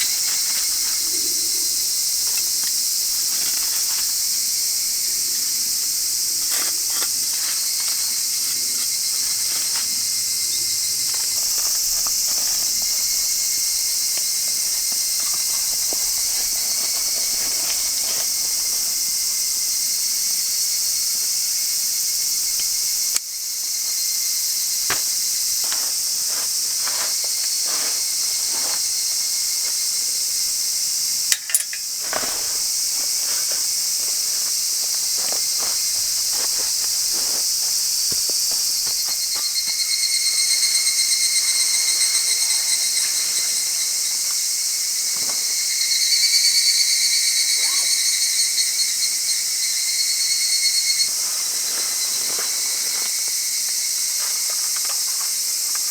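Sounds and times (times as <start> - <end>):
insects buzzing: 0.0 - 55.9
pulsing insect trill: 0.0 - 55.9
small clicks and knocks: 31.3 - 32.4.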